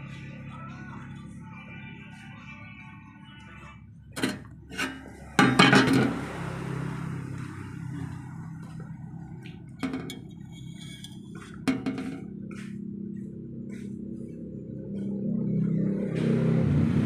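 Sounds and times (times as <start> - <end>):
steady low hum: 0.0 - 17.0
metal clanking and clinking: 4.2 - 6.2, 9.8 - 12.4.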